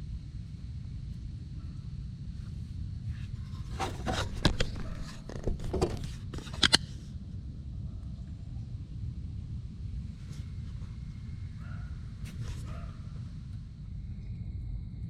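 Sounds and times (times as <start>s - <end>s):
steady low rumble: 0.0s - 15.0s
scrapes and clicks of handling: 3.1s - 7.0s.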